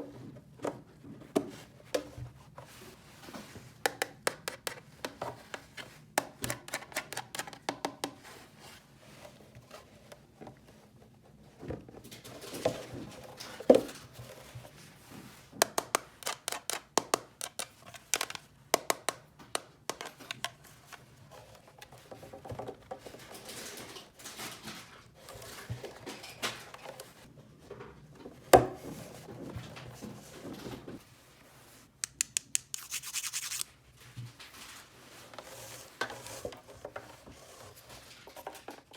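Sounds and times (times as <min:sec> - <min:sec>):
toy pieces clicking and tapping: 0:15.6 - 0:19.2, 0:32.0 - 0:33.6
toy pieces scraping: 0:32.1 - 0:33.7.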